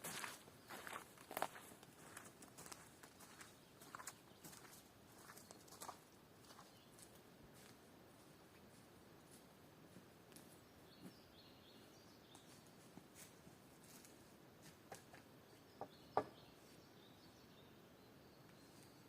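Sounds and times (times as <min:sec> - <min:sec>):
distant bird chirps: 0:14.9 - 0:19.0.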